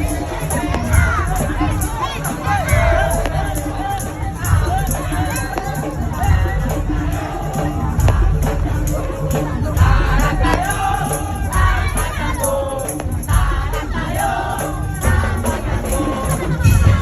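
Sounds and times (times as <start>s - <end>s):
crowd noise: 0.0s - 17.0s
pounding parade drums: 0.0s - 17.0s.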